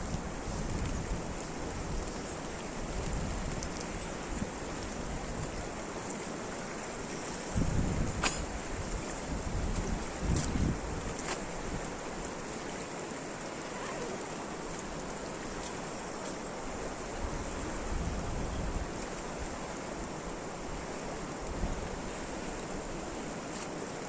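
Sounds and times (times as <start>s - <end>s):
wind buffeting microphone: 0.0s - 5.8s, 7.4s - 11.9s, 16.8s - 19.6s
rain rushing: 11.6s - 23.3s.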